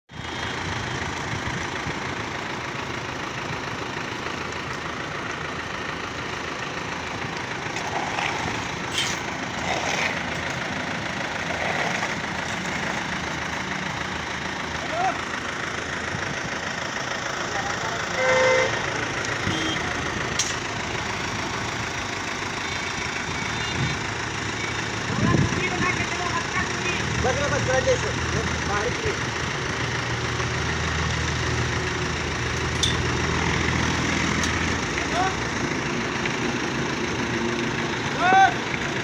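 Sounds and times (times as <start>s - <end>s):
construction machinery engine rumbling: 0.1s - 39.0s
horn toot: 18.2s - 18.8s.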